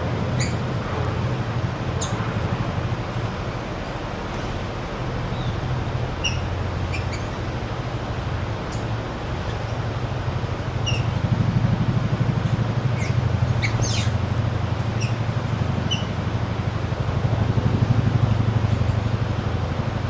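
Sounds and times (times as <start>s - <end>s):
birds chirping: 0.0s - 2.3s, 5.2s - 8.0s, 10.6s - 11.2s, 12.8s - 16.2s
steady low rumble: 0.0s - 20.0s.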